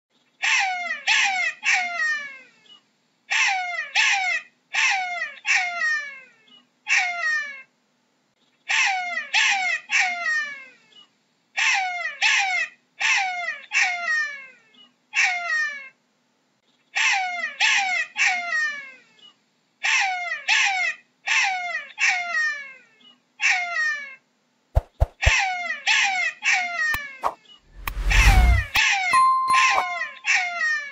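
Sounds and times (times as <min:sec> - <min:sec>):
jackal wailing cries: 0:19.8 - 0:22.8.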